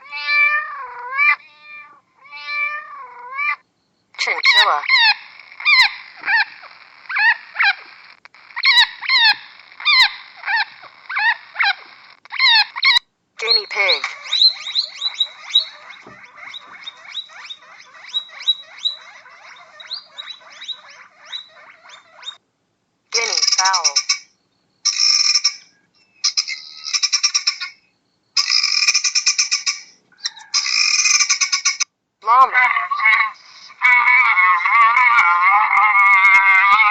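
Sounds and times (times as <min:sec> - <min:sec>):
bird calling: 0:03.2 - 0:22.4, 0:23.1 - 0:31.9
animal calling in pulsed trills: 0:14.0 - 0:22.4.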